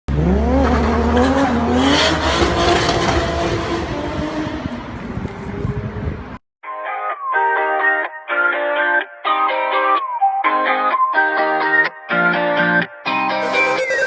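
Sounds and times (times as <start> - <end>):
car engine revving: 0.1 - 6.3.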